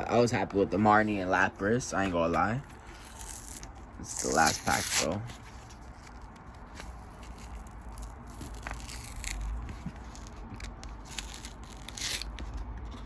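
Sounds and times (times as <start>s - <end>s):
foil wrapper crinkling: 2.8s - 12.4s.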